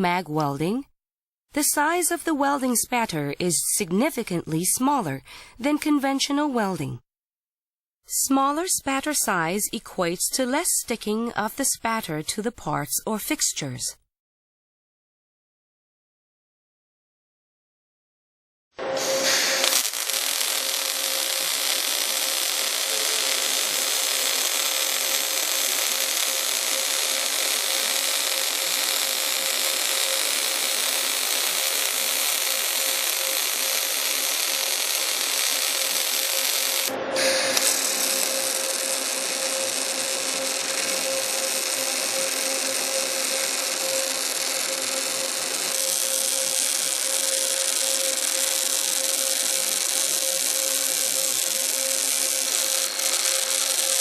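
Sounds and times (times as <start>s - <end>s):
arc welding hiss: 18.8s - 54.0s.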